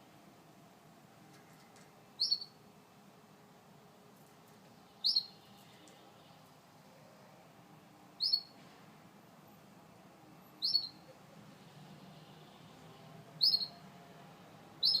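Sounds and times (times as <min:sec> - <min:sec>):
canary chirps: 0:02.2 - 0:02.6, 0:05.0 - 0:06.4, 0:08.2 - 0:08.6, 0:10.6 - 0:11.1, 0:13.4 - 0:13.8, 0:14.8 - 0:15.0.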